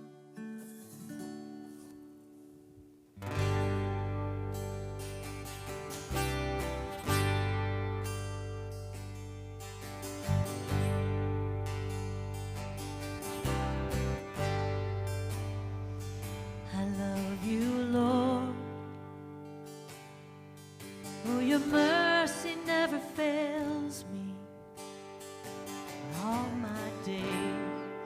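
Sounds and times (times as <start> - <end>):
guitar: 0.0 - 28.0
sustained keyboard chords: 3.2 - 21.2
person singing: 16.6 - 19.0, 21.1 - 24.6, 26.0 - 28.0.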